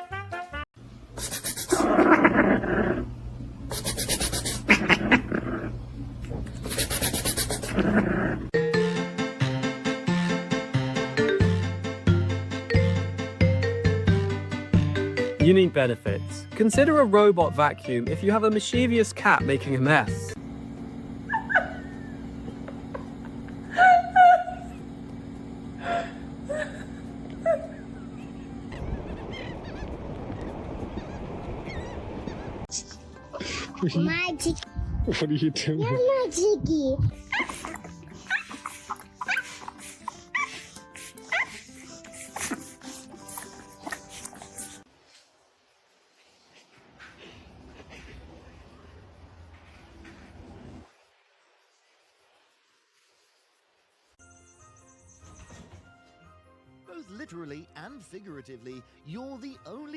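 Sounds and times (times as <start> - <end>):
steady low hum: 0.8 - 8.5, 20.3 - 32.7
pet hissing and rasping: 1.1 - 3.0, 3.6 - 5.7, 6.5 - 8.6, 37.1 - 48.8
animal whining cries: 1.7 - 3.1, 21.3 - 22.2, 37.2 - 44.5.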